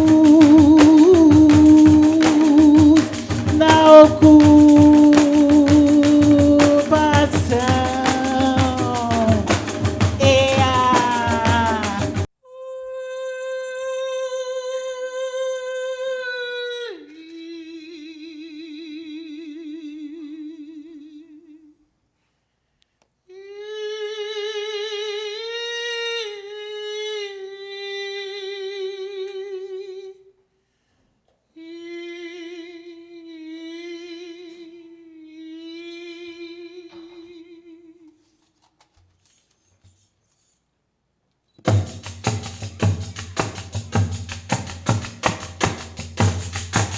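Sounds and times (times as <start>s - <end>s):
woman singing wordless long notes: 0.0s - 21.8s, 23.3s - 30.3s, 31.6s - 38.3s.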